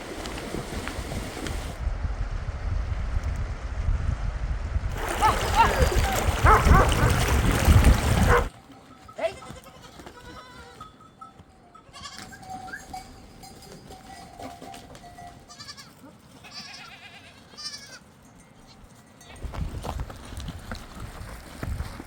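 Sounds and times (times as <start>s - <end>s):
livestock bells ringing: 8.6s - 15.7s, 18.1s - 19.9s
goats bleating: 9.2s - 10.9s, 11.9s - 12.4s, 15.5s - 18.0s.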